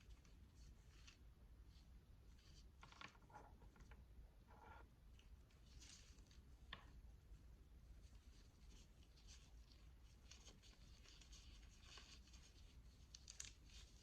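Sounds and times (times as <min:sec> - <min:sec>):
scratching and rubbing on beads: 0:07.9 - 0:14.0.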